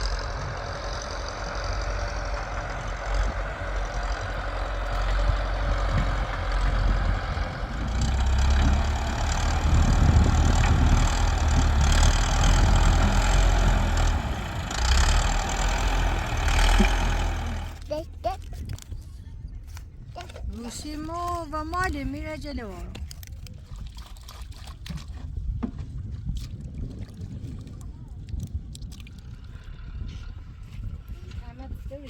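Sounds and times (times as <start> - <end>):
tractor engine running: 0.0 - 23.1.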